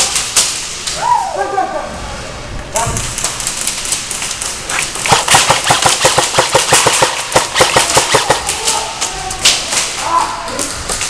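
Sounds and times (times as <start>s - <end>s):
airsoft guns firing rapidly: 5.0s - 8.9s.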